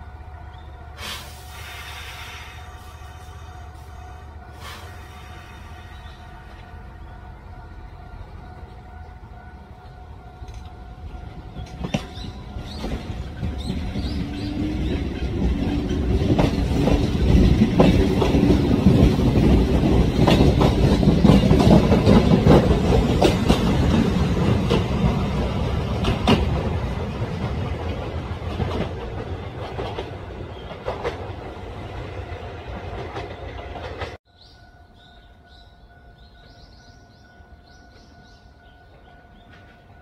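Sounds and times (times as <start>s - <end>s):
train rumble: 0.0s - 40.0s
wheels clacking over rail joints: 8.3s - 34.2s.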